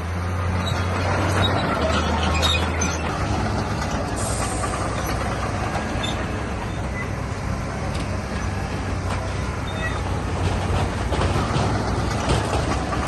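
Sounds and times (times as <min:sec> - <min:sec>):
heavy diesel engine: 0:00.0 - 0:13.0
metallic rattle and clatter: 0:07.9 - 0:13.0.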